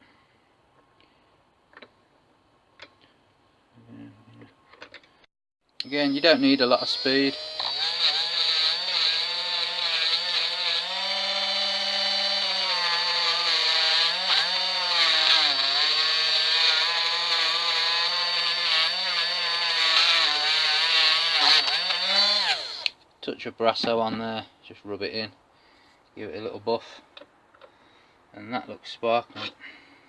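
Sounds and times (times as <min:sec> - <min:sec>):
rotary tool motor whine: 0:06.1 - 0:22.9.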